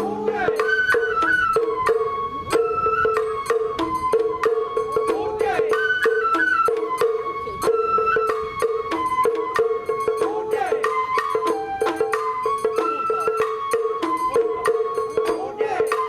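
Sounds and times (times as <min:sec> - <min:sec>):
sharp percussion strikes: 0:00.0 - 0:02.1
high flute melody: 0:00.0 - 0:16.0.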